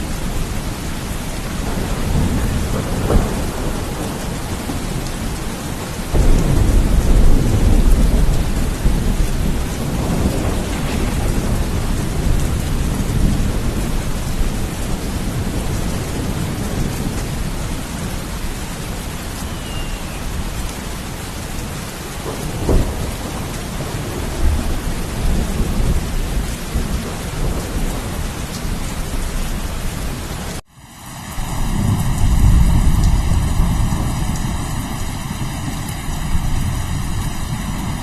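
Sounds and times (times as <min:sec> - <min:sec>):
low rumbling thunder: 0:00.0 - 0:30.3, 0:31.4 - 0:38.0
heavy rain: 0:00.0 - 0:38.0
thunder crack: 0:01.6 - 0:18.1, 0:22.2 - 0:28.8.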